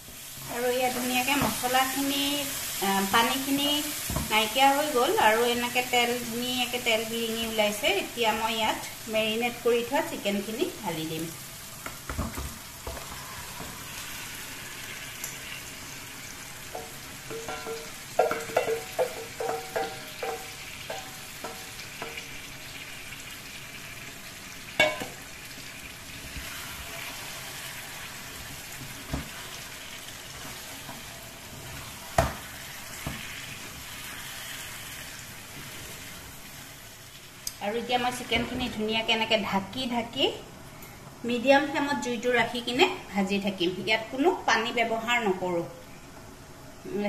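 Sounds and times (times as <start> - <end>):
chicken sizzling in oil: 0.0 - 37.6.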